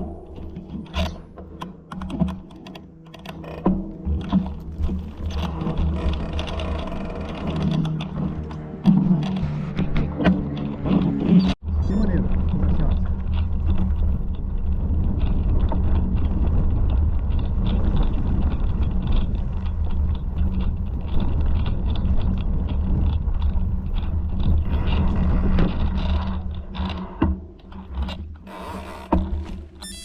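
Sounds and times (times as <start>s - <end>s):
low rumble: 0.0s - 28.5s
wind on microphone: 9.1s - 27.2s
rattle of small clicks and knocks: 12.1s - 30.0s.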